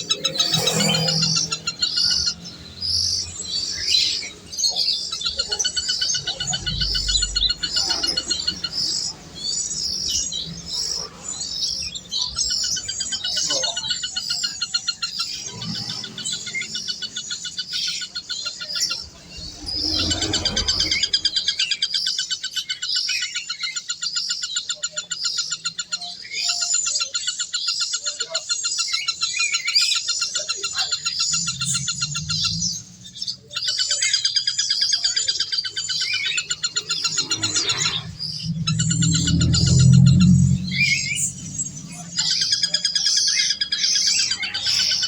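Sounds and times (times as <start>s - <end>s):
birds trilling: 0.0s - 45.0s
low rumble: 31.0s - 33.5s, 36.4s - 43.0s.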